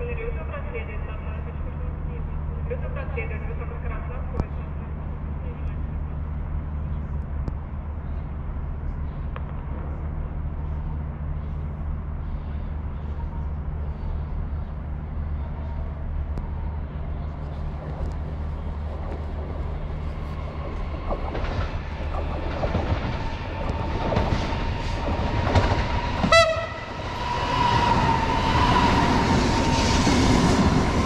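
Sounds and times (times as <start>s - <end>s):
steady low hum: 0.0s - 26.2s
approaching train: 0.0s - 31.0s
rail clicks: 17.4s - 29.0s
train horn: 26.2s - 27.0s.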